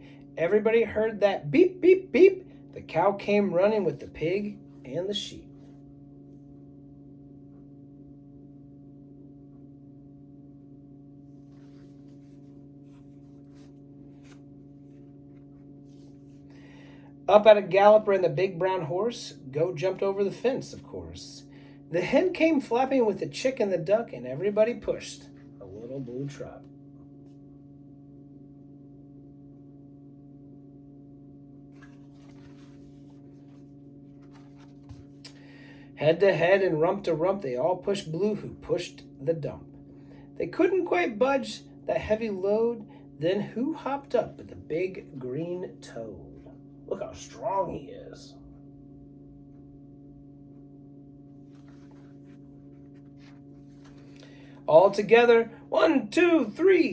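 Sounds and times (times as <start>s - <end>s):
steady low hum: 0.0s - 56.9s
soft rustle: 11.3s - 16.5s, 31.7s - 35.2s, 51.4s - 54.1s.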